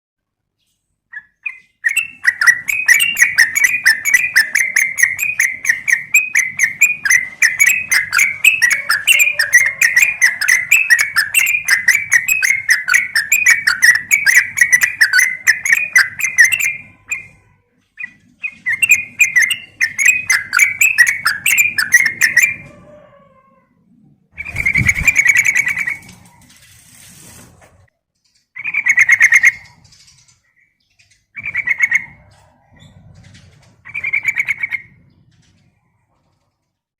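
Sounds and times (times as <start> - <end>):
bird chattering bubbly notes: 1.4 - 17.4, 18.5 - 22.6, 24.4 - 26.2.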